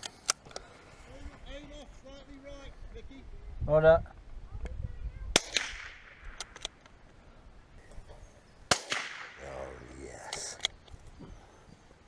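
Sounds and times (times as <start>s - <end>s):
rifle shots echoing: 5.4s - 6.6s, 8.7s - 9.7s.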